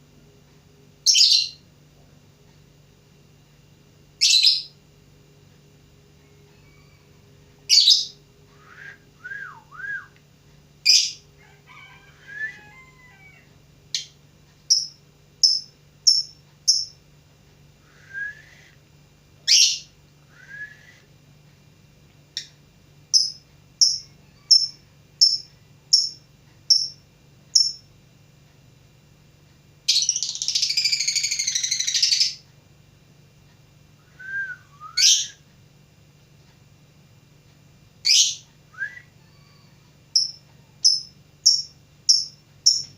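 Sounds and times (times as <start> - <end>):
lovebird slurred whistles: 34.2 - 35.4.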